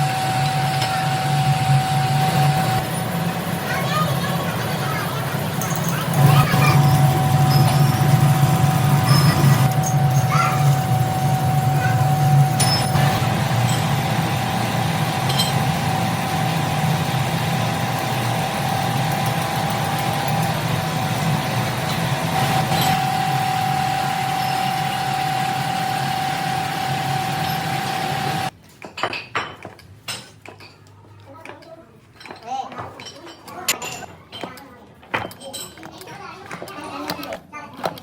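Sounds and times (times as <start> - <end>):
metalworking machinery running: 0.0 - 28.5.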